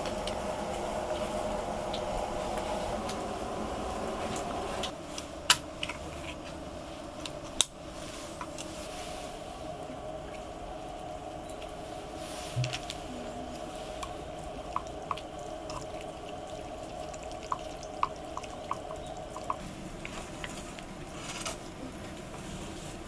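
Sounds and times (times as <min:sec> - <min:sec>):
water drops plinking: 0:13.5 - 0:19.6.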